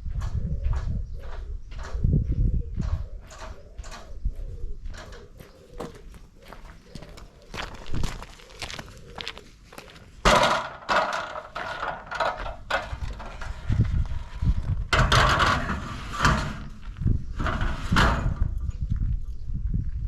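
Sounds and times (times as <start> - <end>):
footsteps: 5.0 - 10.0
rustling: 5.1 - 8.8.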